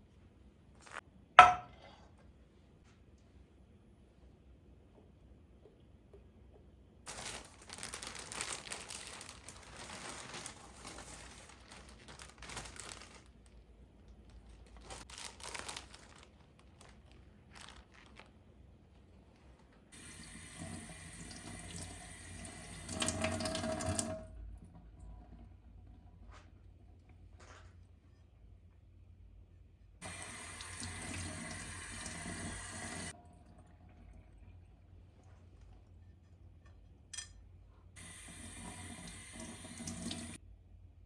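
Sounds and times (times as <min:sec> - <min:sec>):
tap water running into sink: 0:20.0 - 0:24.3, 0:30.0 - 0:33.1, 0:38.0 - 0:40.4.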